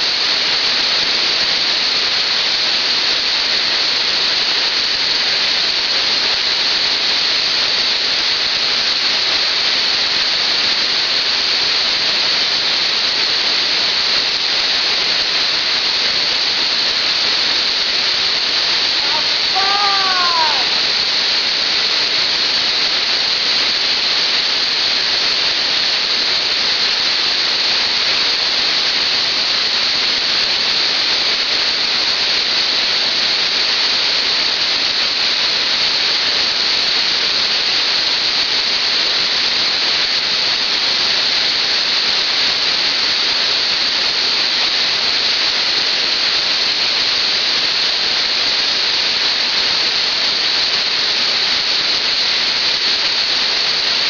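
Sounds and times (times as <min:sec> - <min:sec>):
waterfall rushing: 0:05.7 - 0:42.4.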